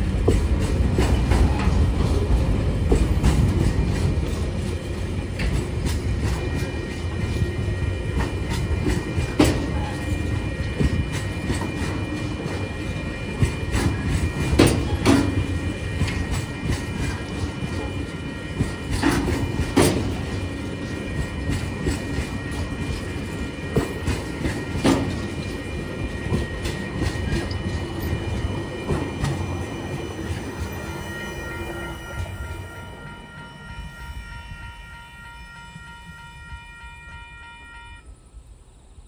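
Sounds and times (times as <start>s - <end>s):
train wheels clacking over rail joints: 0.0s - 30.8s
steady high ringing: 3.5s - 38.5s.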